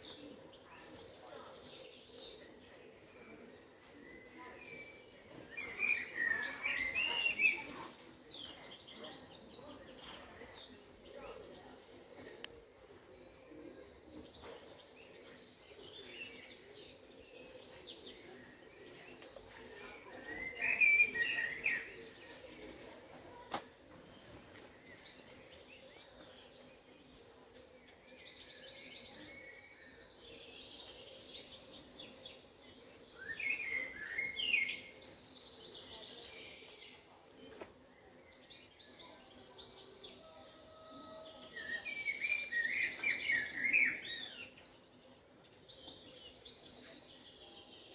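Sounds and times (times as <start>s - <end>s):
songbirds singing and chirping: 0.0s - 47.9s.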